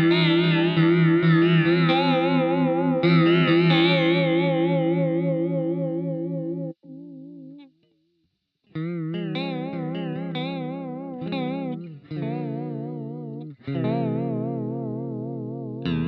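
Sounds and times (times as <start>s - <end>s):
electric guitar with vibrato: 0.0s - 7.7s, 8.8s - 16.0s.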